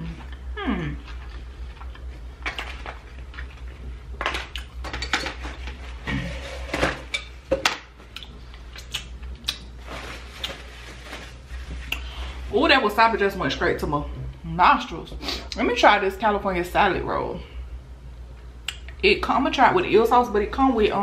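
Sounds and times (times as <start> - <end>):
chewing and mouth sounds: 0.0 - 4.8, 8.1 - 9.7
steady low hum: 0.0 - 21.0.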